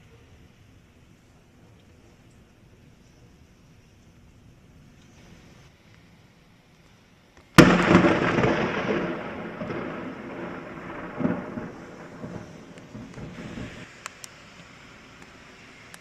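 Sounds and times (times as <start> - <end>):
thunderclap and rumbling: 7.6 - 13.9.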